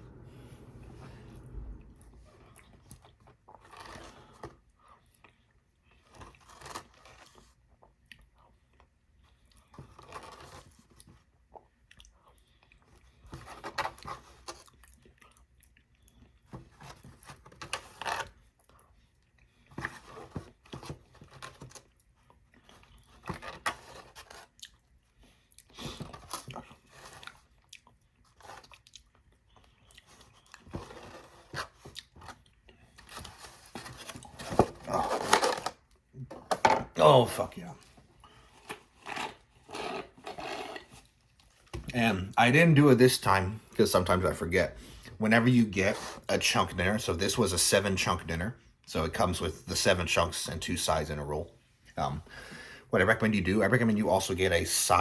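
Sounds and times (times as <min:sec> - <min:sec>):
chewing and crunching fried chicken: 0:02.5 - 0:33.6.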